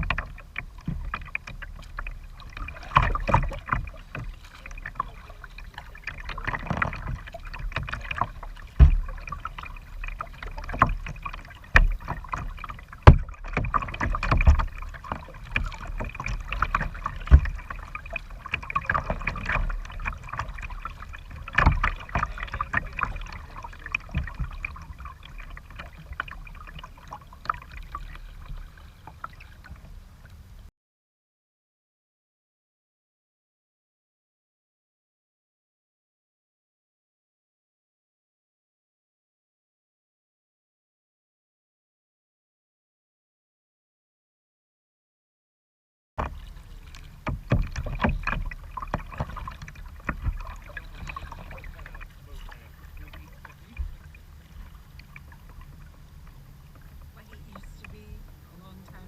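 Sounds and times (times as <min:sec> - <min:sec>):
paddle splashing in water: 0:00.0 - 0:30.7, 0:46.2 - 0:59.0
sharp knocks: 0:08.8 - 0:09.2.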